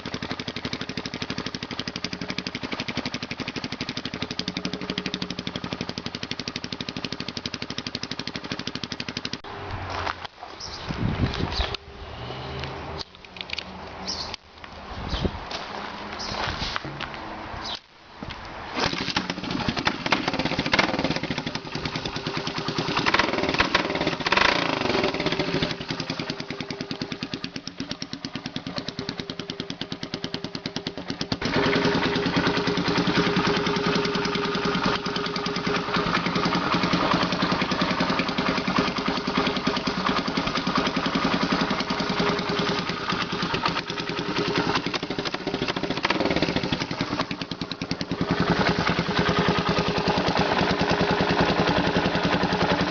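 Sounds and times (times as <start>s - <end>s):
motorcycle engine revving: 0.0s - 10.0s, 18.7s - 52.9s.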